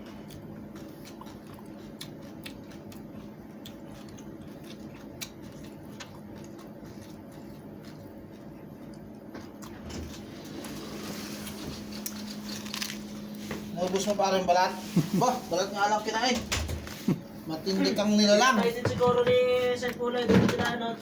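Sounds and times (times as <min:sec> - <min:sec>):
person chewing crunchy food: 0:00.0 - 0:14.1
steady low hum: 0:00.0 - 0:21.0.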